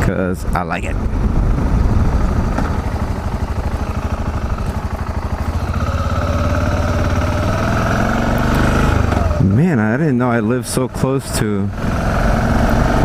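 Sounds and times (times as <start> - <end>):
steady whine: 0.8 - 7.7
motorcycle engine running: 0.9 - 13.0.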